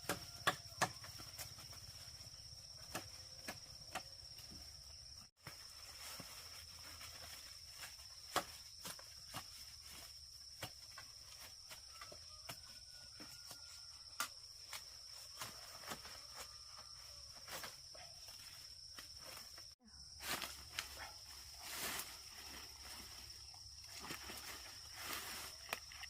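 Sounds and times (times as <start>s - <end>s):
insects trilling: 0.0s - 26.0s
footsteps through vegetation: 4.9s - 13.8s, 14.4s - 26.0s.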